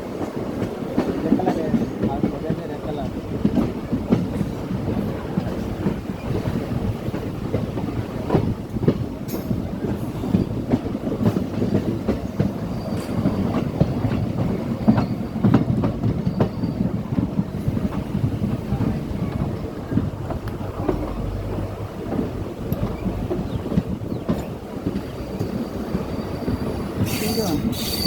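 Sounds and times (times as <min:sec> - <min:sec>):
train wheels clattering on rails: 0:00.0 - 0:28.0.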